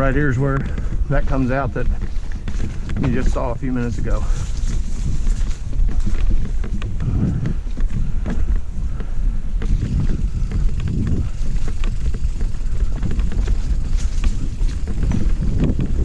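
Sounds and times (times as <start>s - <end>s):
bike clicks and rattles: 0.0s - 16.0s
wind rumble on microphone: 0.0s - 16.0s.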